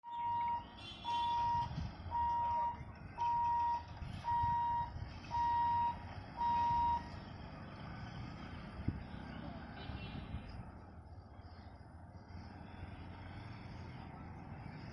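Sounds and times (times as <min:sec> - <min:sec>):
level crossing warning beeps: 0:00.0 - 0:07.2.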